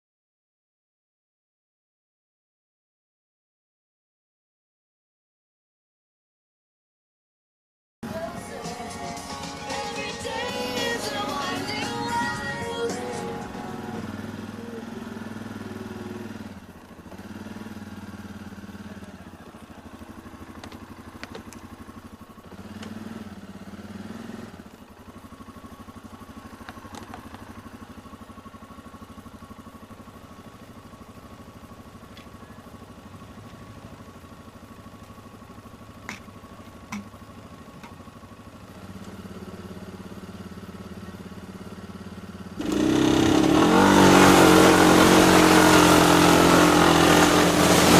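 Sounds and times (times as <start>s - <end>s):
vehicle engines idling: 8.0s - 47.9s
loud engine starting: 42.6s - 47.9s.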